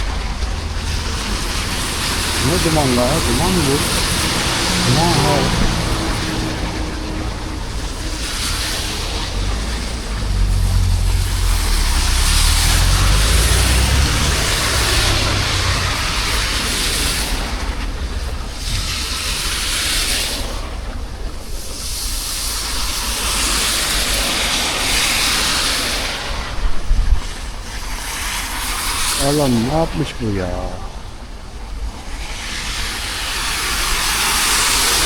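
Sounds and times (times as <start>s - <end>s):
rain hiss: 0.0s - 20.8s
tyres hissing on wet road: 0.0s - 30.1s, 31.9s - 35.0s
heavy vehicle rumble: 0.1s - 18.6s.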